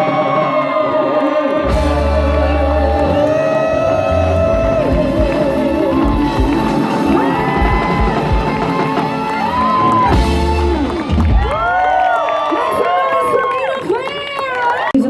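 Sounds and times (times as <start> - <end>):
crowd whooping and cheering: 0.0 - 15.0
live latin band playing: 1.7 - 11.9.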